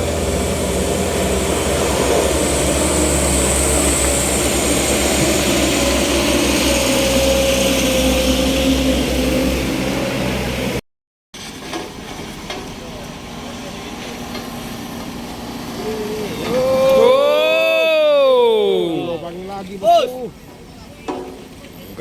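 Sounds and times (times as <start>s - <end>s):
vehicle engine running under load: 0.0s - 10.8s, 11.4s - 22.0s.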